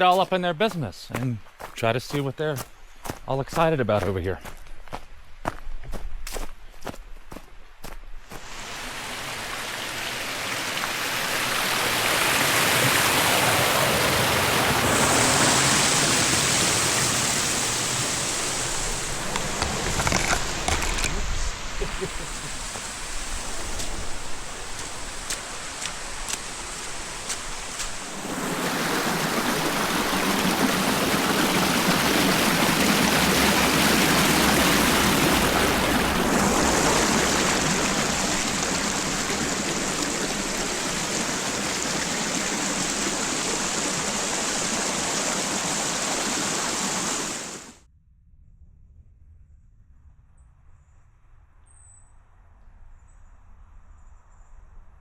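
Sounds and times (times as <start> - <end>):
creek water rushing: 8.3 - 47.8.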